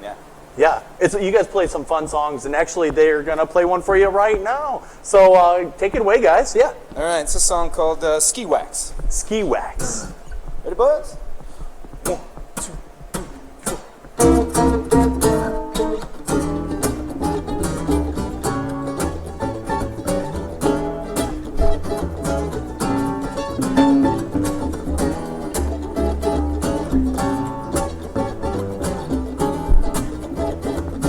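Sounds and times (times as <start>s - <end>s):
sharp clicks: 8.9s - 14.3s
acoustic string band playing: 13.8s - 31.0s.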